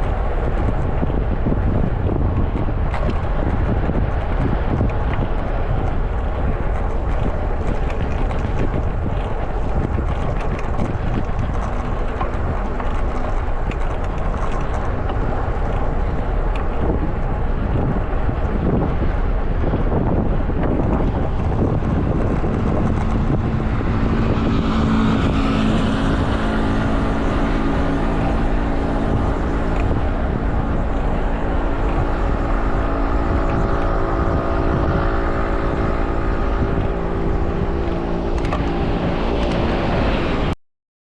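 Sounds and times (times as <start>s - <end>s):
engine droning: 0.0s - 40.6s
traffic hum: 0.0s - 40.6s
wind on microphone: 0.0s - 40.6s.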